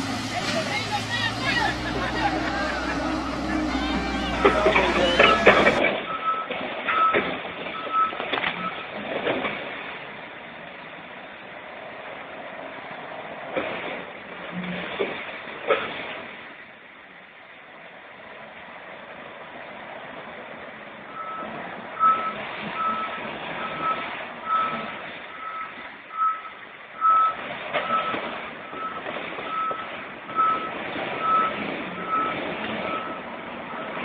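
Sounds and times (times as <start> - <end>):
vehicle backup alarm beeping: 0.0 - 9.0, 21.1 - 34.0
heavy machinery noise: 0.0 - 10.2, 19.8 - 34.0.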